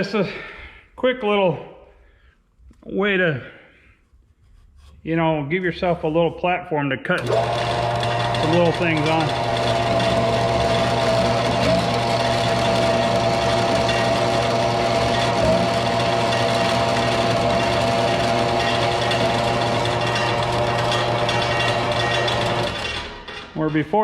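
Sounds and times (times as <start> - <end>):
band saw cutting: 7.2 - 24.0.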